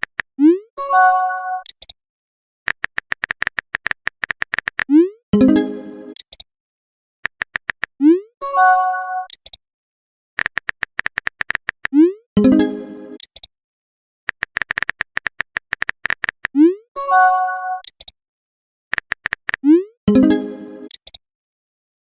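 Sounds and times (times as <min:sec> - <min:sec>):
rapid typing clicks: 0:00.0 - 0:00.3, 0:02.7 - 0:04.9, 0:07.2 - 0:07.9, 0:10.4 - 0:12.0, 0:14.3 - 0:16.6, 0:18.9 - 0:19.6
bright message alert chime: 0:20.1 - 0:20.9.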